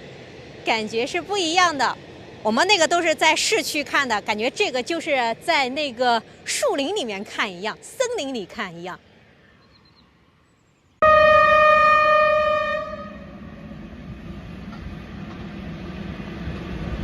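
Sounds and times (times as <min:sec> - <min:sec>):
train rumbling on track: 0:00.0 - 0:17.0
freight train horn blast: 0:11.0 - 0:13.6.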